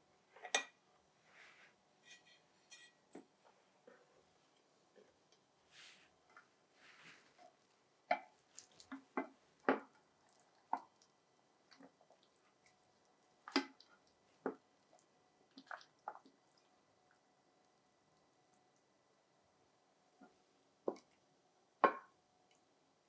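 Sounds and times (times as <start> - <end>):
utensil clinking on pan and plate: 2.0 - 3.0
wet squishing of sauce: 7.2 - 19.3.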